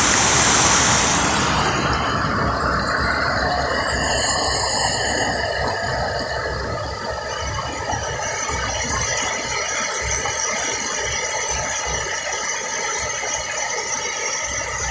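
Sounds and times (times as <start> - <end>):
water rushing over spillway: 0.0 - 5.1
wind on microphone: 0.0 - 7.6.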